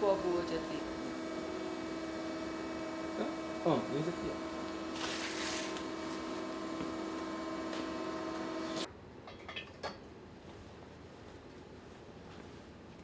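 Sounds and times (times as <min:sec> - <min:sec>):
electric machine hum: 0:00.0 - 0:08.9.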